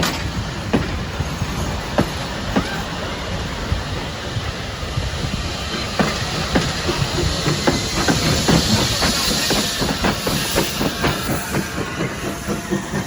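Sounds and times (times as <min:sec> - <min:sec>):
train rumble and hiss: 0:00.0 - 0:13.0.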